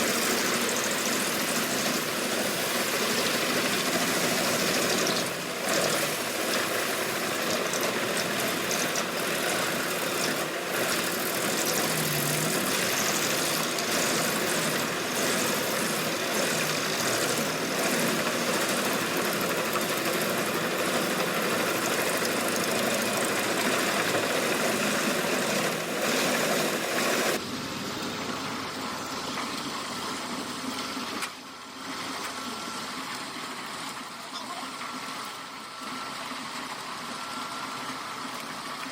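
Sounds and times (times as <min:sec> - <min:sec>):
engine running steadily: 0:00.0 - 0:38.9
wood chipper grinding wood: 0:00.0 - 0:38.9.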